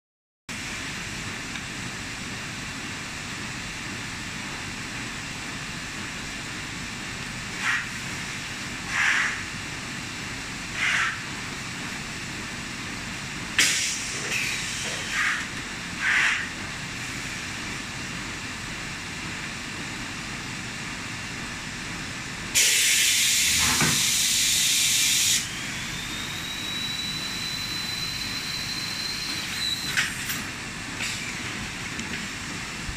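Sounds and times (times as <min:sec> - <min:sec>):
loud air hiss: 0:13.6 - 0:17.4, 0:22.5 - 0:27.0.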